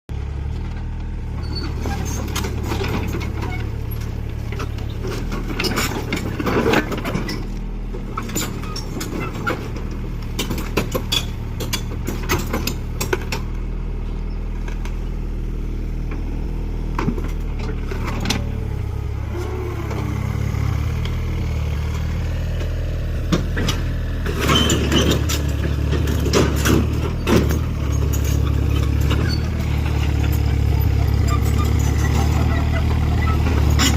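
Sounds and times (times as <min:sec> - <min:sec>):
diesel engine running: 0:00.1 - 0:33.9
metallic clanks and knocks: 0:08.1 - 0:13.6, 0:23.2 - 0:32.4.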